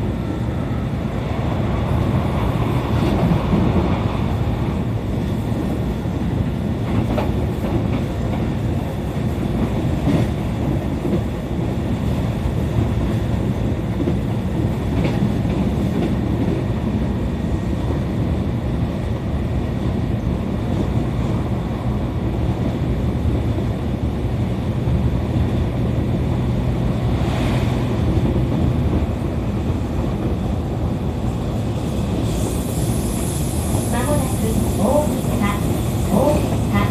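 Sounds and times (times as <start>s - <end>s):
train wheels rumbling on rail: 0.0s - 36.9s.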